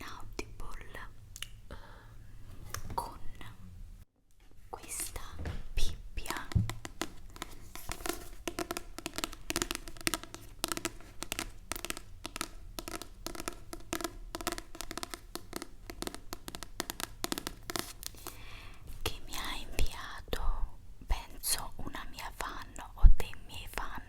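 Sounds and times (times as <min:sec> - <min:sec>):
fingernail tapping on object: 0:06.3 - 0:18.2.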